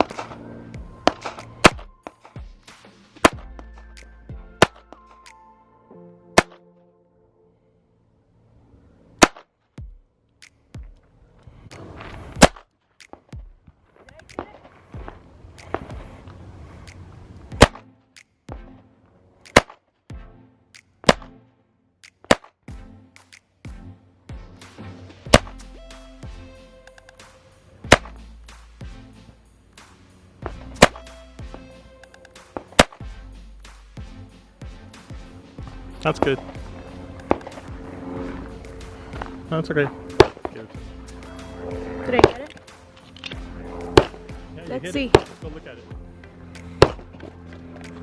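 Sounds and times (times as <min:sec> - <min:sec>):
fainter gunshots: 0:00.0 - 0:03.4, 0:27.2 - 0:47.2
background music: 0:00.0 - 0:08.4, 0:15.0 - 0:48.0.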